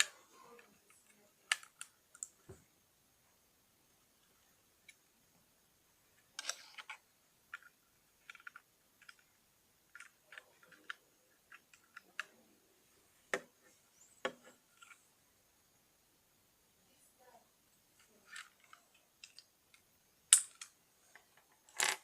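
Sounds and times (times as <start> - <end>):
plastic bricks clicking together: 0.9 - 2.4, 6.4 - 9.3, 18.3 - 22.0.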